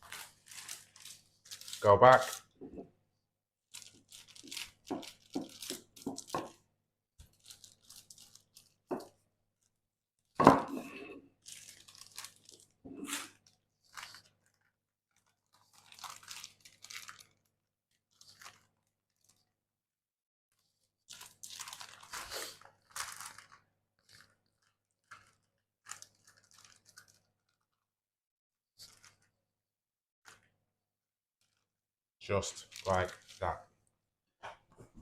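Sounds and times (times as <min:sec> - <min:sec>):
parchment paper crinkling: 0:00.0 - 0:02.5, 0:03.7 - 0:06.6, 0:07.2 - 0:09.7, 0:11.4 - 0:19.6, 0:20.6 - 0:27.9, 0:28.8 - 0:29.4, 0:31.4 - 0:31.7, 0:32.5 - 0:33.6.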